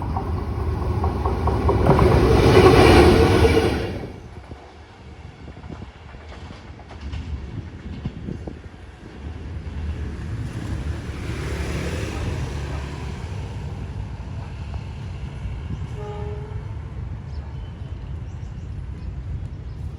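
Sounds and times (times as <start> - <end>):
locomotive rumbling past: 0.0 - 4.6.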